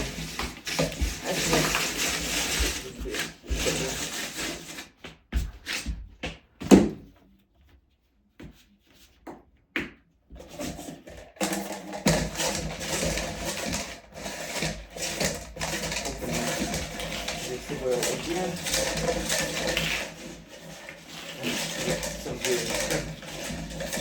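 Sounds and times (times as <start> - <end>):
cable rubbing and scraping: 0.0 - 5.0, 10.4 - 24.0
plastic scrapes: 0.0 - 5.0, 10.4 - 24.0.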